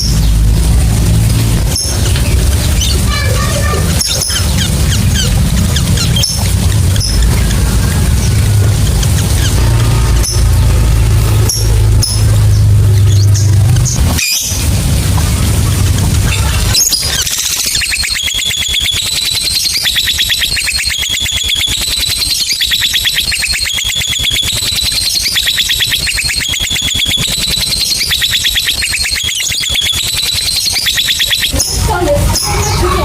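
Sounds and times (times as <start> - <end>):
lovebird fast shrill chirping trill: 16.3 - 33.0.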